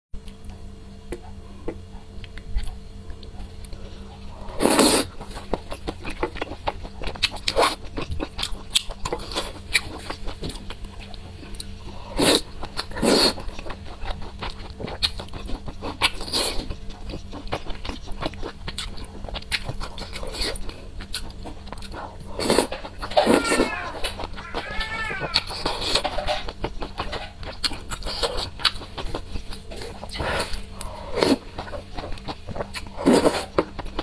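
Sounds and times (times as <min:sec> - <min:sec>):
wet chewing with mouth clicks: 0:00.2 - 0:34.0.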